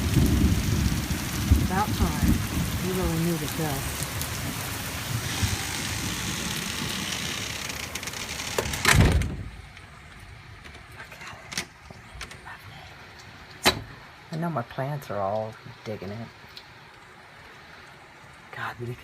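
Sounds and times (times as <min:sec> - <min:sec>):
heavy rain pouring: 0:00.0 - 0:19.0
loud thump: 0:08.6 - 0:09.6.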